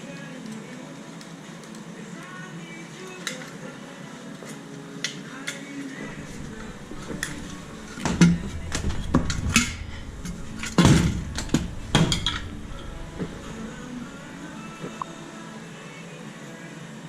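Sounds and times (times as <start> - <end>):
metal tools clanking: 6.1 - 15.0.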